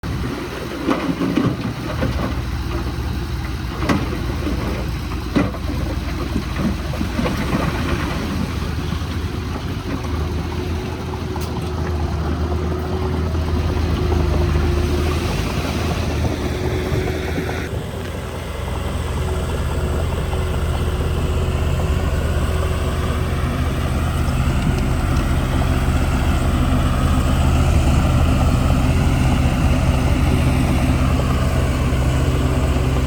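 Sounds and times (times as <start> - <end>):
diesel machinery rumbling: 0.0 - 33.0
steady whine: 15.1 - 18.3.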